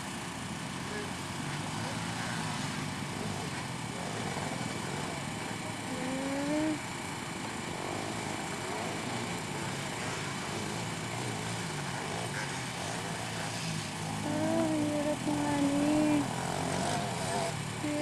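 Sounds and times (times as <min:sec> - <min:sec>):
racing quad engines droning: 0:00.0 - 0:18.0.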